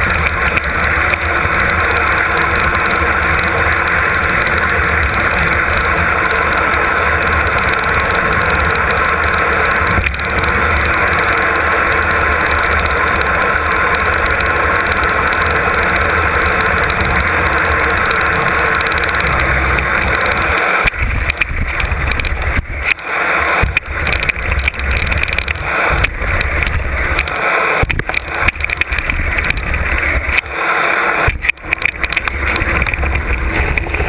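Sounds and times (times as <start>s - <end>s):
bike rattling: 0.0s - 34.0s
wind rushing over microphone: 7.4s - 30.6s, 31.2s - 34.0s
sharp knocks and jolts: 14.0s - 34.0s.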